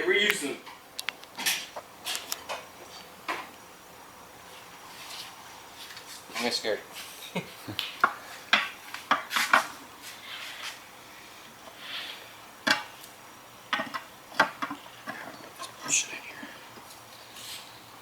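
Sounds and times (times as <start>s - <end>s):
short scraping hiss: 17.3s - 17.8s.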